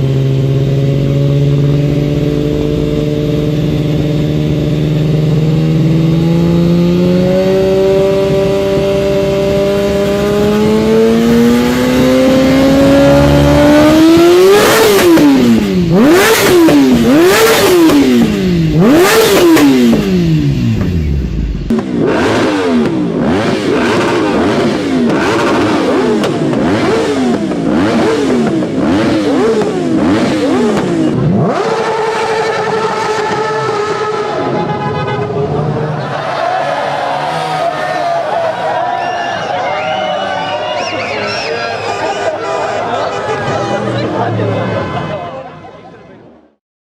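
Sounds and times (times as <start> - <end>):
motorcycle engine revving: 0.0 - 38.4
exhaust cracks: 13.8 - 34.1.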